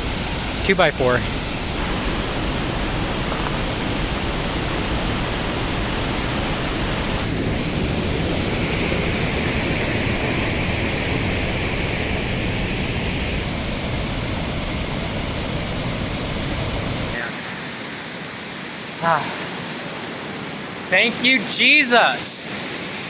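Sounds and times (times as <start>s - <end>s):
creek rapids rushing: 17.1s - 23.0s.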